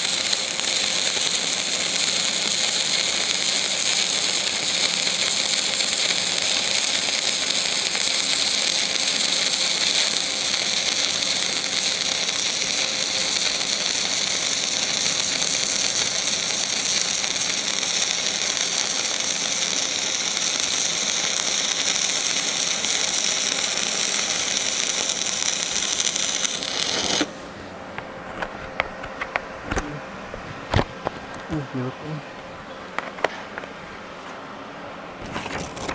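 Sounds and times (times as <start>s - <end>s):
welding arc crackling: 0.0s - 27.4s.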